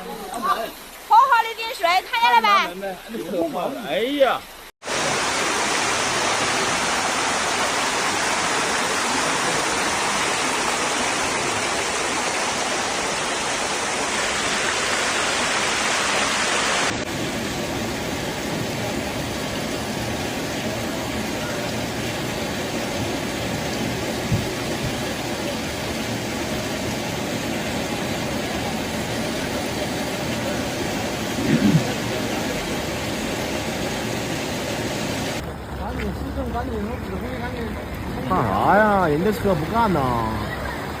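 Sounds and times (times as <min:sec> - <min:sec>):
flood water rushing: 0:00.0 - 0:41.0.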